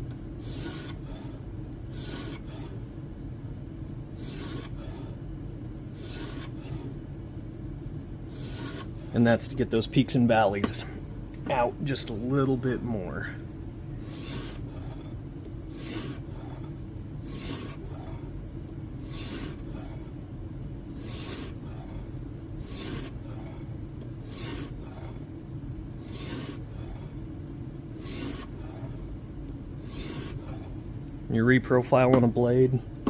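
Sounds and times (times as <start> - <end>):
sharpening stone rasping on blade: 6.0 - 6.6, 8.4 - 8.9, 14.1 - 14.6, 15.7 - 16.2, 17.3 - 17.8, 19.1 - 19.6, 21.0 - 21.6, 22.7 - 23.2, 24.3 - 24.8, 26.1 - 26.6, 28.0 - 28.5, 29.8 - 30.4.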